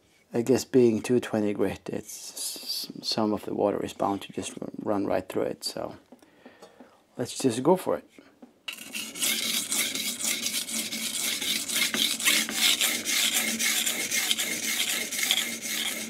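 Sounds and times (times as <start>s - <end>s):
knife scraping on whetstone: 8.7s - 16.0s.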